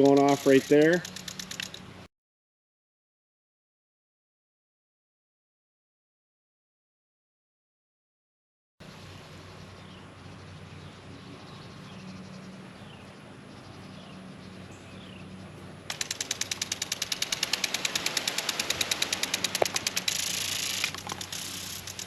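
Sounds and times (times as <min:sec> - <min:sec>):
sprinkler spraying in pulses: 0:00.0 - 0:01.8, 0:15.9 - 0:22.0
small high chirps: 0:15.9 - 0:22.0.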